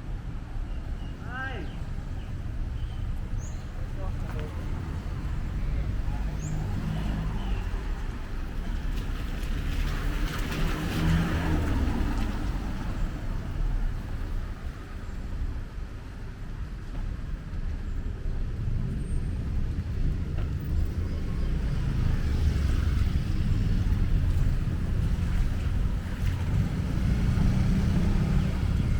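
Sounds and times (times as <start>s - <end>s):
cars passing: 0.2s - 28.9s.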